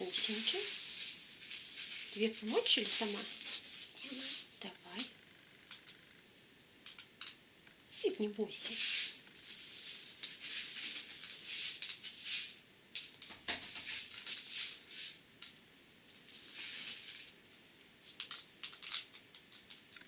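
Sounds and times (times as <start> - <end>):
beads trickling with a hiss: 0.0 - 4.6, 8.6 - 12.6, 13.7 - 15.2, 16.2 - 17.4, 18.0 - 20.0
small ticks of beads: 6.8 - 7.8, 18.1 - 20.0.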